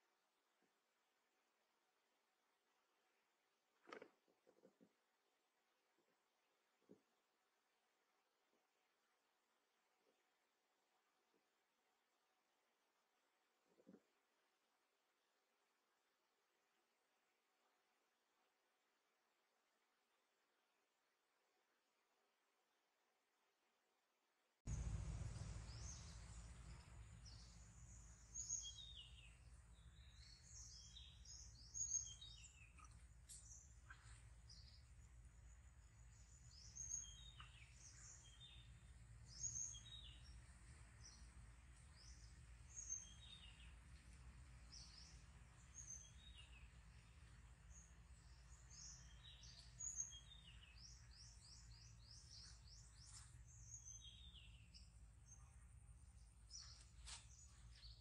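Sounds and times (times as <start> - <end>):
birds chirping: 24.7 - 58.0
faint low rumble: 24.7 - 58.0.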